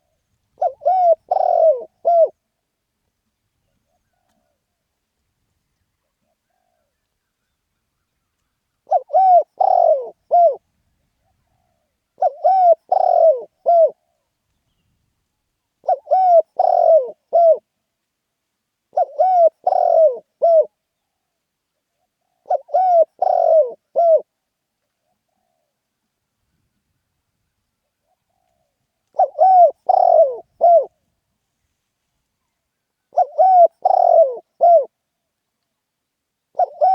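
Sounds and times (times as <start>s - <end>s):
dove cooing: 0.0s - 2.4s, 8.8s - 10.6s, 11.2s - 14.2s, 15.8s - 17.7s, 18.9s - 20.8s, 22.0s - 24.3s, 28.0s - 31.0s, 33.1s - 35.0s, 36.5s - 36.9s.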